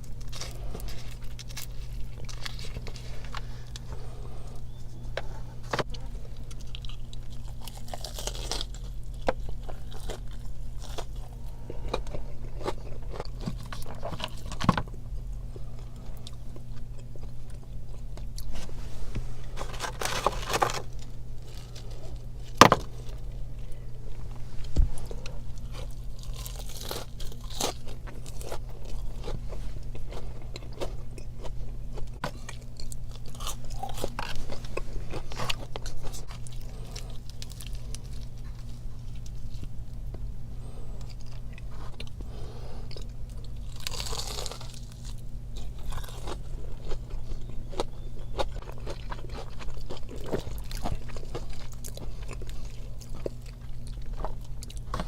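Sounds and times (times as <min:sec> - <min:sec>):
crunching and chewing food: 0:00.0 - 0:55.0
low hum: 0:00.0 - 0:55.0.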